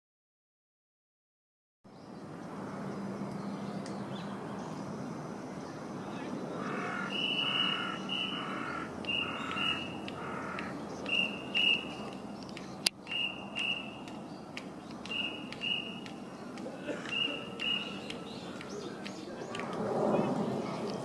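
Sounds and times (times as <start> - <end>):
bird whistled two-note call: 11.1 - 12.0, 13.1 - 14.0, 15.1 - 16.0, 17.1 - 18.0.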